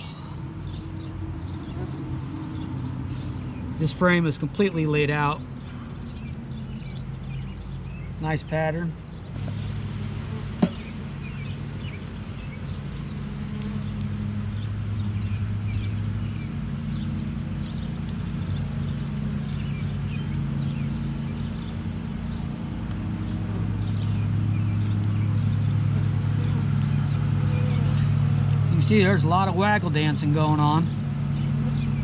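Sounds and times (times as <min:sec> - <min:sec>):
small birds chirping: 0:00.0 - 0:32.0
bees buzzing: 0:09.3 - 0:32.0.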